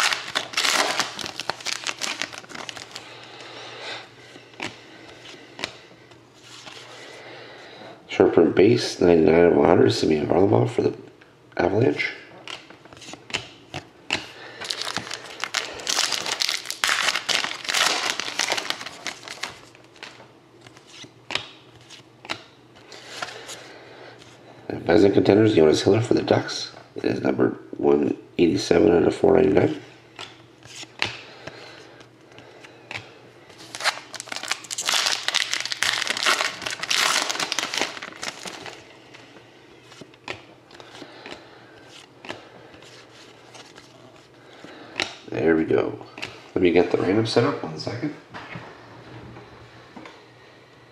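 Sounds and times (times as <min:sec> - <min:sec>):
wrappers crinkling and rustling: 0:00.0 - 0:03.2, 0:14.6 - 0:21.1, 0:33.5 - 0:38.8.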